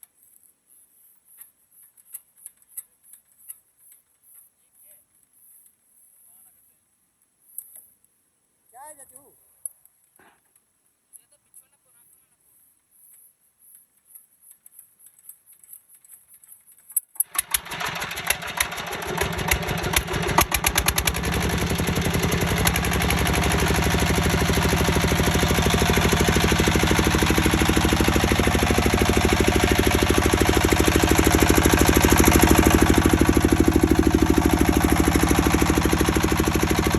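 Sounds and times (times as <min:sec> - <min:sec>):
diesel engine starting and running: 0:17.2 - 0:36.9.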